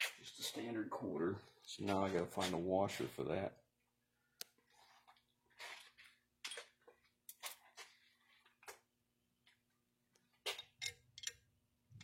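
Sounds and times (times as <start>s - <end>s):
metal hardware clicking and clinking: 10.4s - 12.0s.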